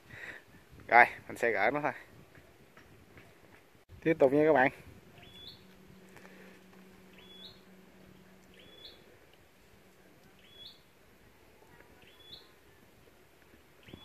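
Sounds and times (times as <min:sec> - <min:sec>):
faint low hum: 0:02.0 - 0:14.0
bird two-step calls: 0:05.2 - 0:05.7, 0:07.1 - 0:07.7, 0:08.5 - 0:09.0, 0:10.4 - 0:10.9, 0:12.0 - 0:12.6.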